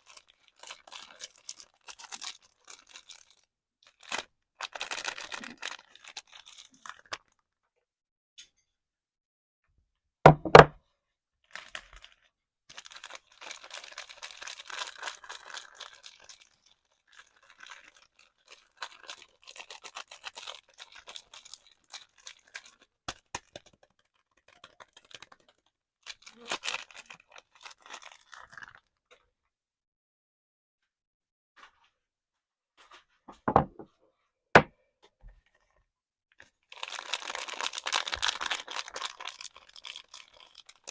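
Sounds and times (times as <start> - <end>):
wrapper crinkling: 0.0 - 7.4, 11.5 - 28.9, 36.4 - 40.9
heavy knocks: 10.3 - 10.8.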